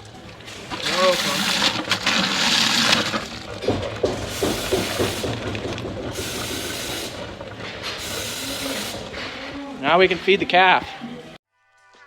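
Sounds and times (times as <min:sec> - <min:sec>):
liquid splashing into a pail: 0:00.0 - 0:09.2.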